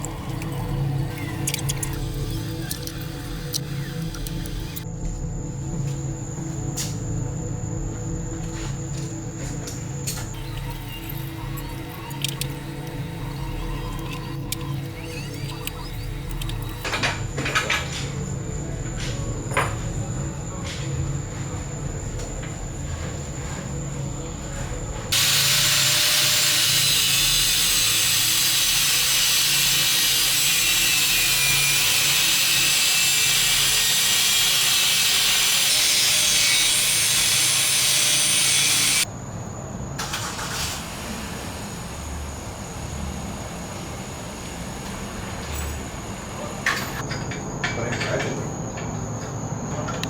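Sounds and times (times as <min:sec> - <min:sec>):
power tool cutting metal pipe: 0:00.0 - 0:04.8, 0:25.1 - 0:39.1.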